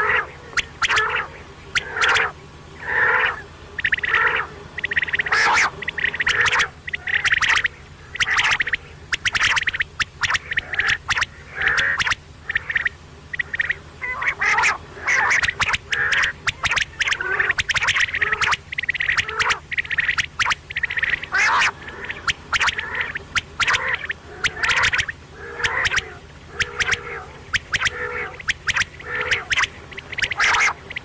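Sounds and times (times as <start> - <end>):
quail calling: 0.0 - 31.0.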